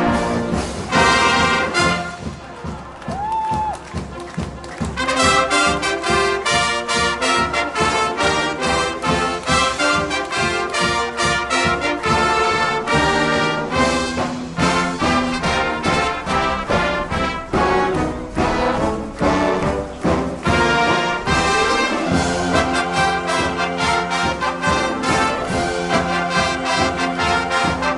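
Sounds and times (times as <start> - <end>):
trombones and trumpets: 0.0 - 2.7, 4.2 - 27.9
marching band brass music: 0.0 - 27.9
steady drum beat: 0.0 - 27.9.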